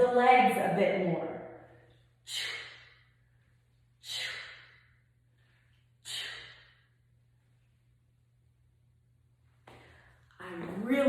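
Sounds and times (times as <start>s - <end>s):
person exhaling sharply: 4.0s - 4.8s, 6.0s - 6.8s.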